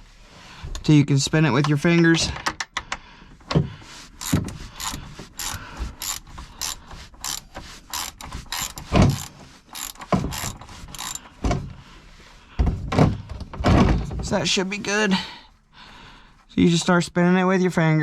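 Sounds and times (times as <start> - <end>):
socket ratchet wrench clicking: 4.2 - 11.2.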